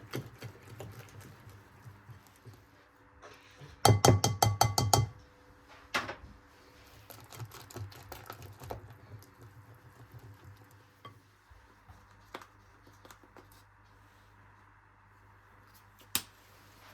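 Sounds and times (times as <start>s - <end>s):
kitchenware clicks and taps: 3.9s - 5.2s
utensil clinking against dish: 3.9s - 5.2s.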